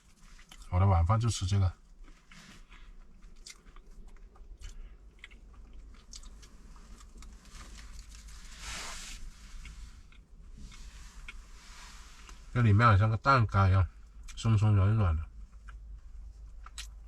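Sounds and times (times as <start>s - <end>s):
chewing and crunching: 0.0s - 8.6s, 15.2s - 17.0s
brief hiss: 8.4s - 9.9s.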